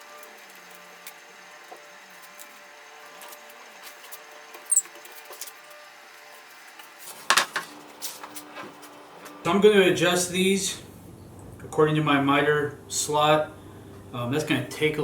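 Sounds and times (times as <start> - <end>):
sharp high squeak: 4.6 - 5.0
faint steady hum: 9.0 - 15.0.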